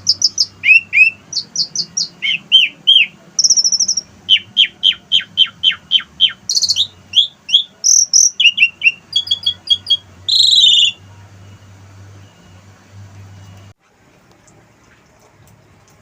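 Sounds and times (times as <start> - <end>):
starling singing mimicked calls: 0.0 - 11.1.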